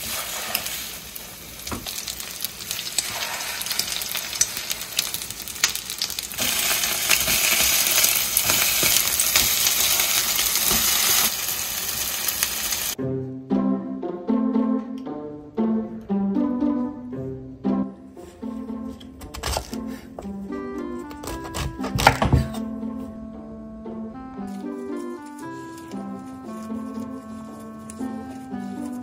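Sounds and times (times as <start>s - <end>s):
spoon and spatula scraping: 0.0s - 1.2s, 1.8s - 11.3s, 18.9s - 20.0s, 24.6s - 29.0s
batter sizzling in a frying pan: 0.0s - 13.0s
music with plucked strings: 13.0s - 29.0s.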